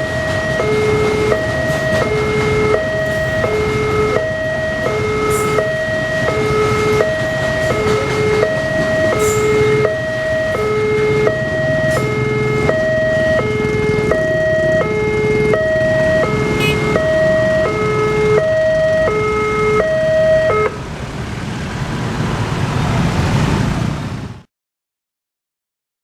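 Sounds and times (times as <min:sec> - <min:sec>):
level crossing alarm two-tone: 0:00.0 - 0:20.8
steady rushing noise: 0:00.7 - 0:24.4.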